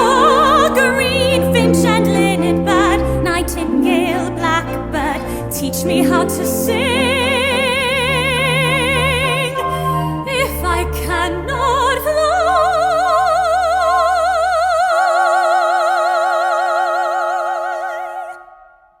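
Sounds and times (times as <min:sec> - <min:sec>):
instrumental accompaniment: 0:00.0 - 0:13.5.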